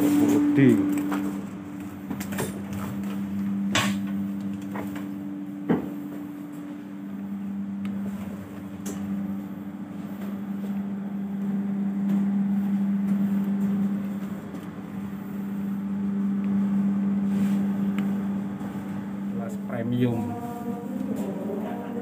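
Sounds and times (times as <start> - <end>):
train carriage mechanical hum: 0.0 - 22.0.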